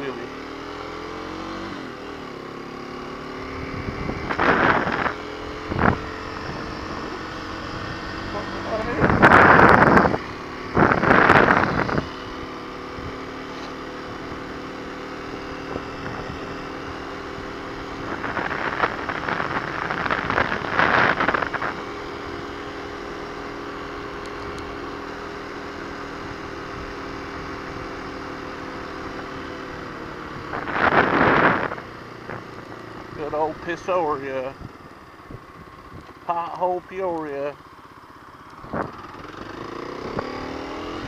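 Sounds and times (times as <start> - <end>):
motorcycle engine running: 0.0 - 41.0
rushes of noise: 3.3 - 13.2, 17.5 - 22.0.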